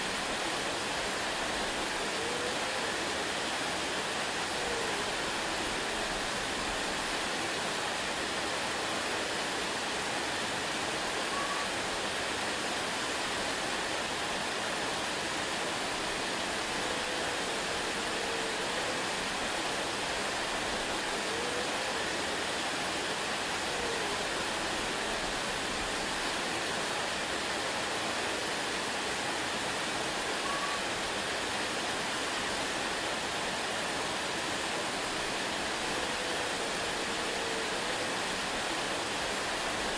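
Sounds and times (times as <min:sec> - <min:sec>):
waterfall rushing: 0:00.0 - 0:39.9
faint whistled notes: 0:11.3 - 0:11.7, 0:30.4 - 0:30.8.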